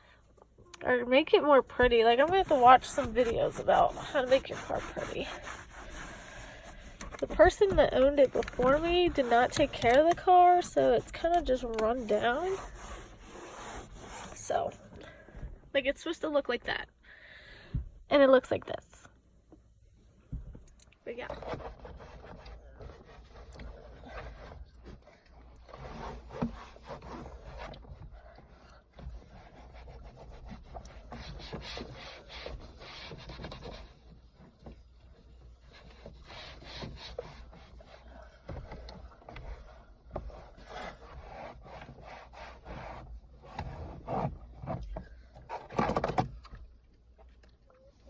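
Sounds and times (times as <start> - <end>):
cloth scrubbing door trim: 1.7 - 14.4.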